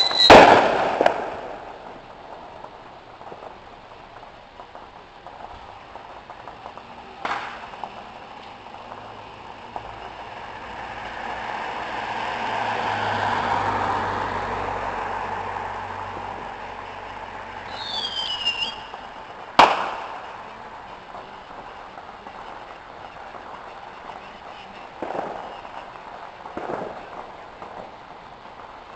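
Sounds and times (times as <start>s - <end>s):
firework bang: 0.0s - 13.0s, 15.0s - 28.9s
firework whistling: 0.0s - 28.9s
passing vehicle engine: 9.2s - 17.7s.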